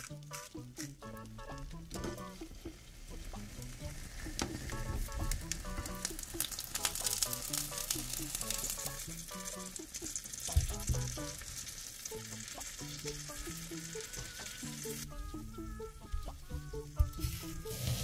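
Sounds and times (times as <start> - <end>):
plucked background music: 0.0 - 18.0
food sizzling in a pan: 2.2 - 15.1, 16.8 - 18.0.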